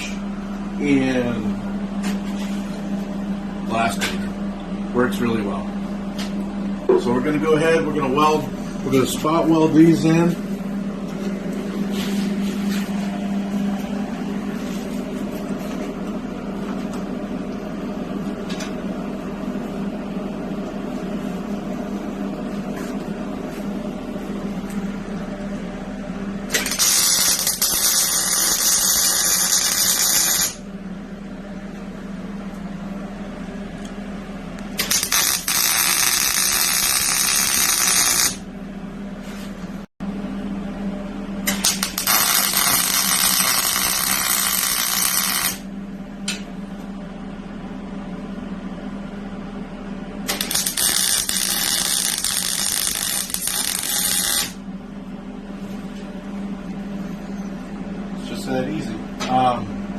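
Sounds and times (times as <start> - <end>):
fan hum: 0.0 - 59.9
welding arc crackling and hissing: 26.5 - 30.6, 34.8 - 38.4, 41.5 - 45.7, 50.3 - 54.6.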